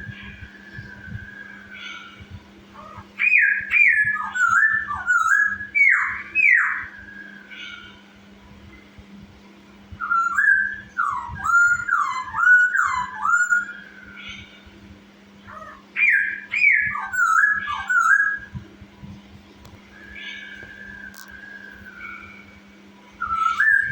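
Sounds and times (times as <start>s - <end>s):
bird singing whistled notes: 0.0s - 8.0s, 10.0s - 14.8s, 15.5s - 18.6s, 19.8s - 23.9s
soft bird calls: 0.0s - 9.0s, 10.0s - 23.9s
low hum: 0.0s - 16.0s.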